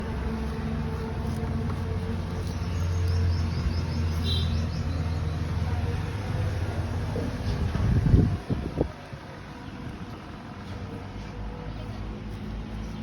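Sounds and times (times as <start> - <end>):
bird chirping: 2.3 - 5.6.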